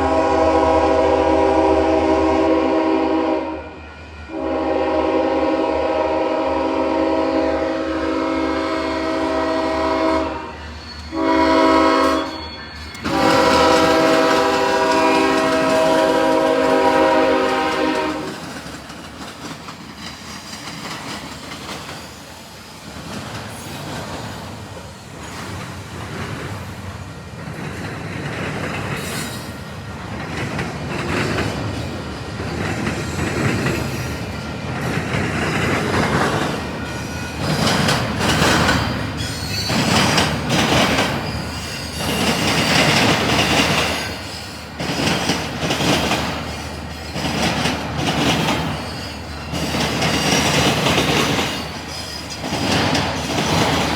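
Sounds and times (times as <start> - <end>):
locomotive air horn blasts: 0.0 - 18.4
train wheels clattering over track: 8.9 - 53.9.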